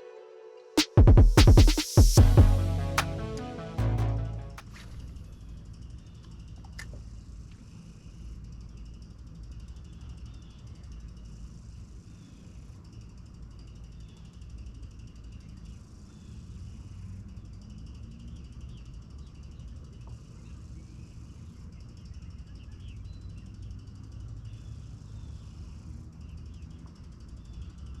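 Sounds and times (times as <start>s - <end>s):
steady low rumble: 2.2s - 4.6s.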